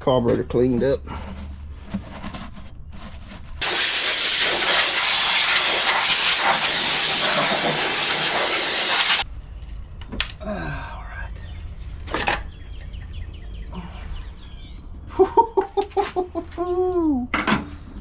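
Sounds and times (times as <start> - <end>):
pressurized spray hissing: 3.6 - 9.2.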